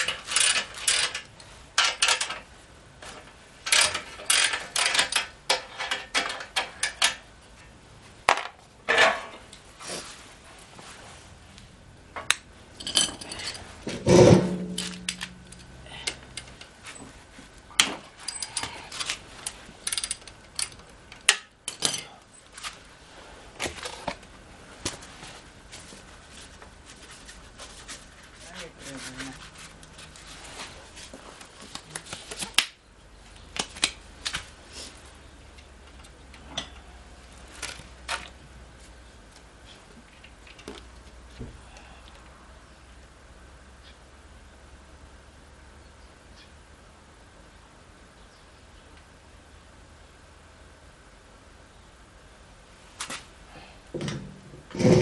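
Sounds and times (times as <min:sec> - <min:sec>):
metal objects clicking and clinking: 0:00.0 - 0:02.4, 0:03.6 - 0:07.2, 0:12.8 - 0:16.6, 0:17.8 - 0:22.8.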